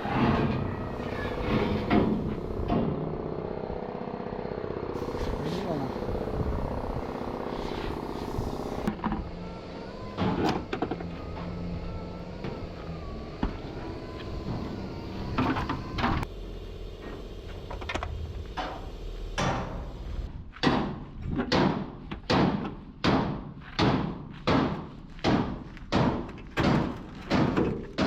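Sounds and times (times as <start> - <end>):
low steady hum: 0.1 - 20.4.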